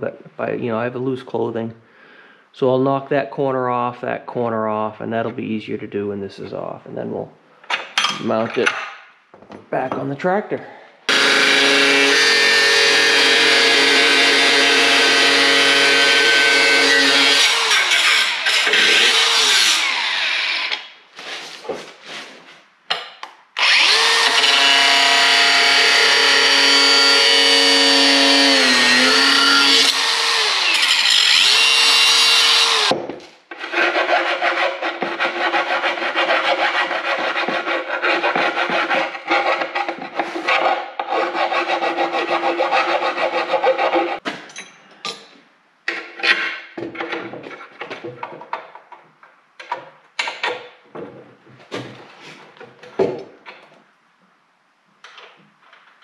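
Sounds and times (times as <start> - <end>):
power tool cutting wood: 11.1 - 20.9, 23.6 - 33.0.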